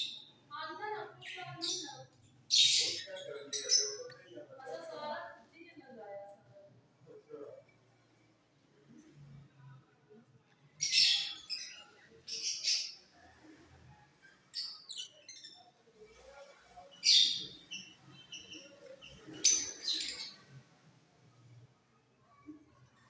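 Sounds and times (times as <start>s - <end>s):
lovebirds chirping: 1.2s - 4.4s, 17.0s - 20.5s.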